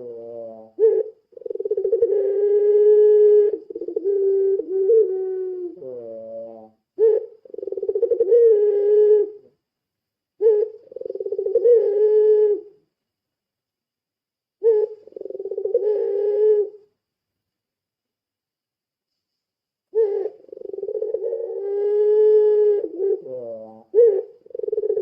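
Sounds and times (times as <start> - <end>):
dove cooing: 0.0 - 9.5, 10.4 - 12.8, 14.6 - 16.9, 19.9 - 25.0.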